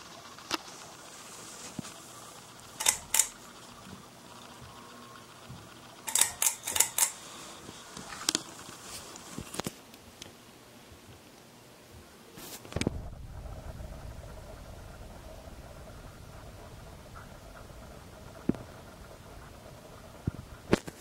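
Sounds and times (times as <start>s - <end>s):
ceiling fan whirring: 0.0s - 21.0s
sharp clicks: 2.7s - 3.4s, 6.1s - 7.2s.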